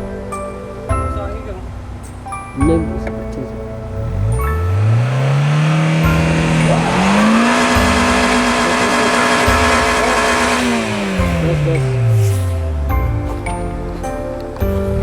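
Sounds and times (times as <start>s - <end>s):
car engine revving: 0.0s - 15.0s
wheels spinning in snow: 4.1s - 13.4s.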